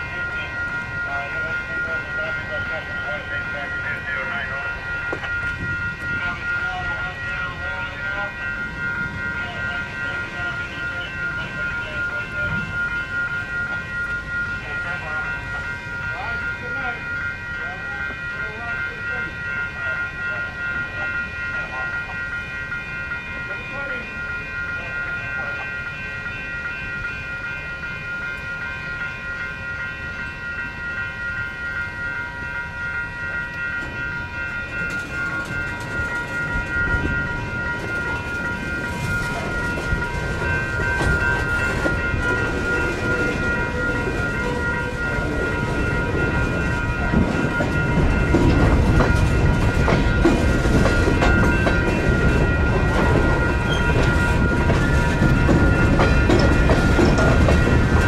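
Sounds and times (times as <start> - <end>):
train wheels clacking: 0.0 - 16.9, 32.5 - 58.0
high multi-toned ringing: 0.0 - 58.0.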